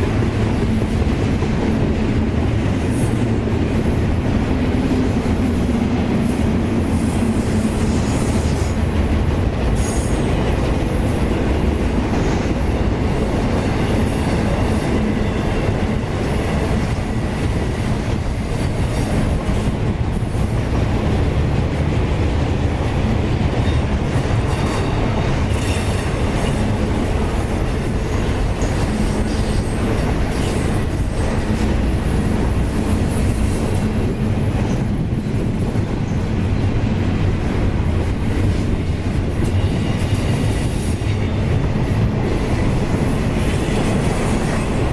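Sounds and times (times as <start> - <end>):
train wheels clattering on track: 0.0 - 44.9.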